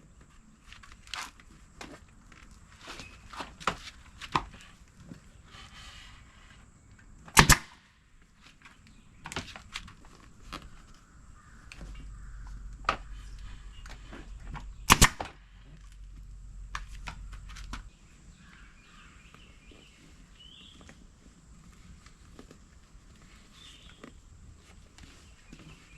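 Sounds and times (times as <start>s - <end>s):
staple gun firing: 7.4s - 7.8s, 14.9s - 15.4s.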